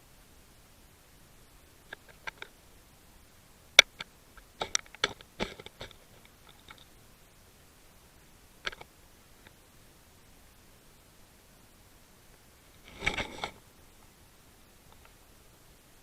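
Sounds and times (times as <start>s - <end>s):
sharp clicks and knocks: 3.8s - 6.9s, 8.6s - 9.6s.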